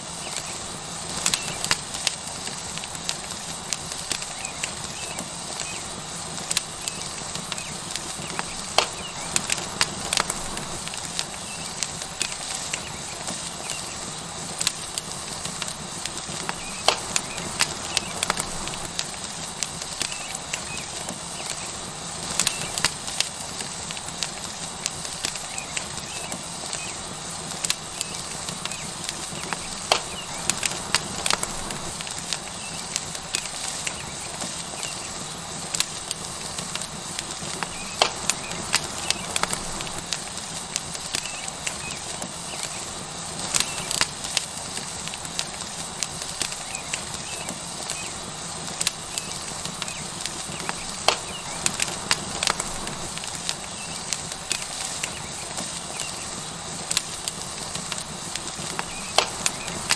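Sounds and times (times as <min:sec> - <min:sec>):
burning wood crackling and popping: 0:00.0 - 0:59.9
steak sizzling on hot rock: 0:00.0 - 0:59.9.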